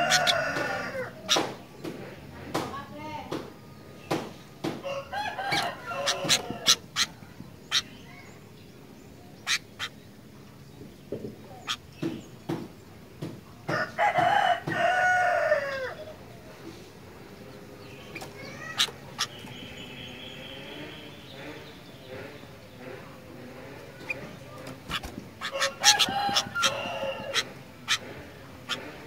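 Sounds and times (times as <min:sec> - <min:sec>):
rooster crowing: 0:00.0 - 0:01.2, 0:04.8 - 0:06.8, 0:13.7 - 0:16.0, 0:25.4 - 0:27.5.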